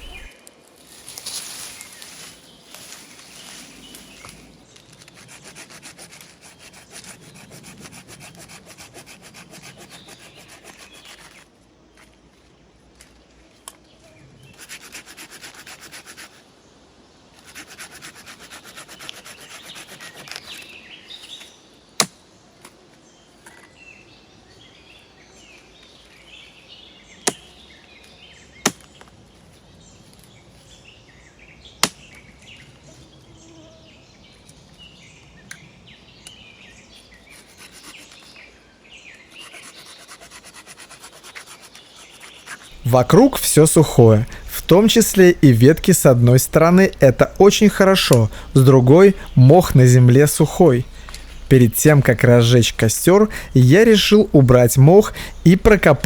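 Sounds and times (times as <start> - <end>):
hand saw cutting wood: 5.0 - 11.4, 14.6 - 16.4, 17.4 - 20.6, 37.3 - 38.2, 39.3 - 45.4, 50.6 - 51.6.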